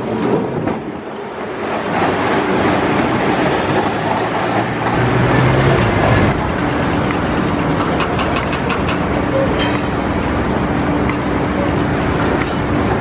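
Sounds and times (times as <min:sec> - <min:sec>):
tram wheels rumbling on rails: 0:00.0 - 0:13.0
low motor hum: 0:04.9 - 0:06.4.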